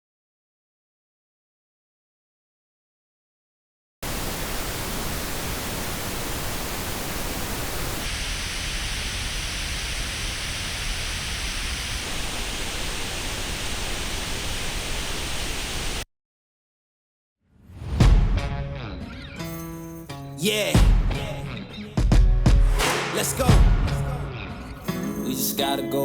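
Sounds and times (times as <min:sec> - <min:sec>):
pink noise test signal: 0:04.0 - 0:16.0.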